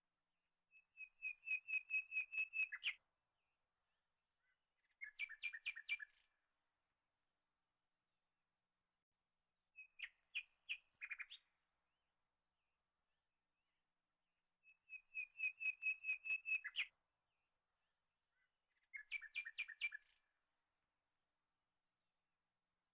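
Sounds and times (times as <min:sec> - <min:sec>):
bird chirping: 0:00.8 - 0:03.0, 0:04.4 - 0:06.3, 0:09.8 - 0:11.5, 0:14.7 - 0:16.9, 0:18.3 - 0:20.2.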